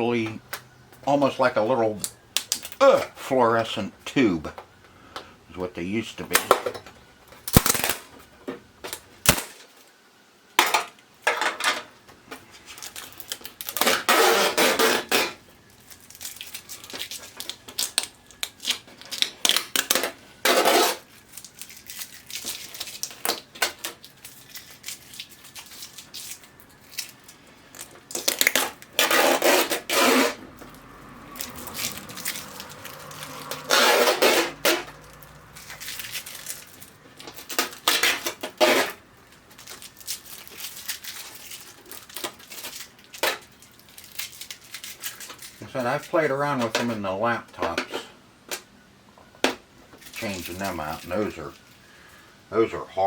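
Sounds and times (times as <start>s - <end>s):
adhesive strips scraping and peeling: 7.5s - 8.0s, 12.7s - 45.6s
plastic strips clinking: 12.7s - 47.0s.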